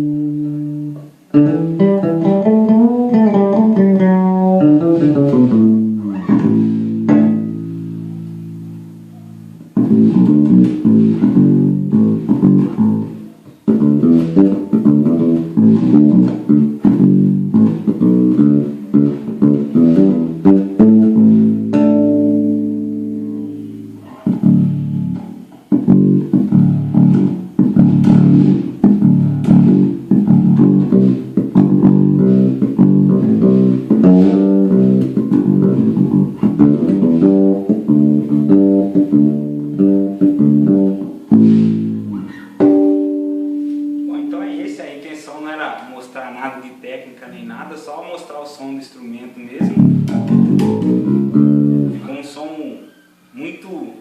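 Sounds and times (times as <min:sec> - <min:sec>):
electric bass guitar notes: 0:00.0 - 0:45.7, 0:49.5 - 0:53.3.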